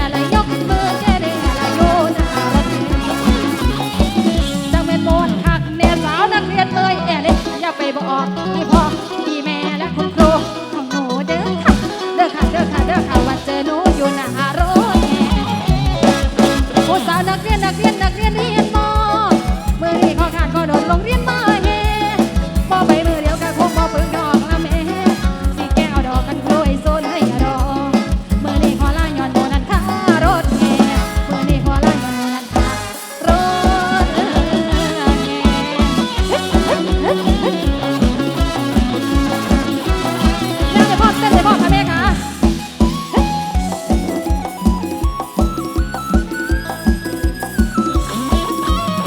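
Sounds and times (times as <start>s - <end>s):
loud band music over loudspeaker: 0.0s - 49.0s.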